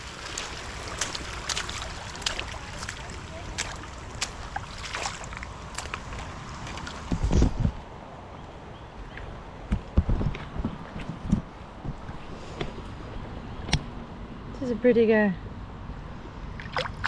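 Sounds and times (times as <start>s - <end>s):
creek water rushing: 0.0s - 7.3s.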